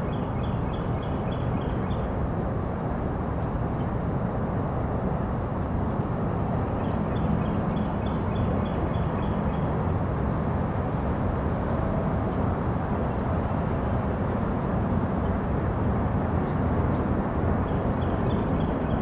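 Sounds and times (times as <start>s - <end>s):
bird chirping: 0.0s - 2.1s, 6.6s - 9.7s, 17.7s - 19.0s.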